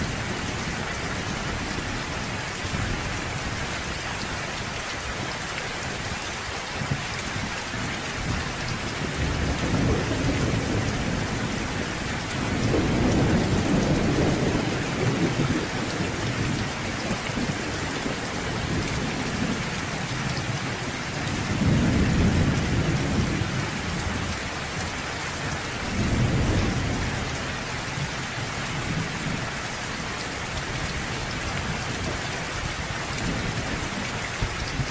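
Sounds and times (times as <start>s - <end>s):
steady rain: 0.0s - 34.9s
thunder rumbling: 7.8s - 24.4s, 25.8s - 29.5s.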